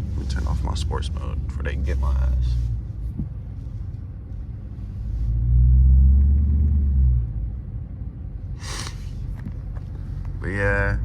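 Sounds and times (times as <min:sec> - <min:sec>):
car exhaust deep rumble: 0:00.0 - 0:11.0.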